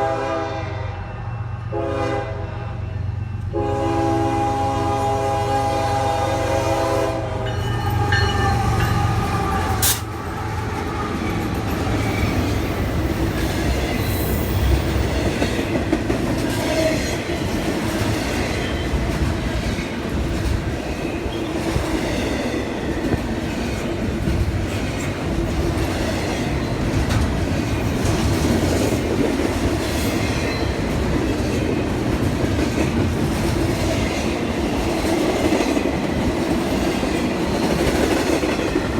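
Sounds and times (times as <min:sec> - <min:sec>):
locomotive air horn chord: 0:00.0 - 0:02.9, 0:03.5 - 0:10.0
train rumbling by: 0:00.0 - 0:38.9.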